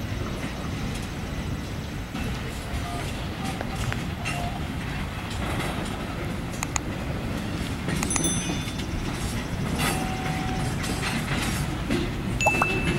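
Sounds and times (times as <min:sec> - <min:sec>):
train rumbling on rails: 0:00.0 - 0:12.9
train wheels squealing: 0:08.0 - 0:12.0.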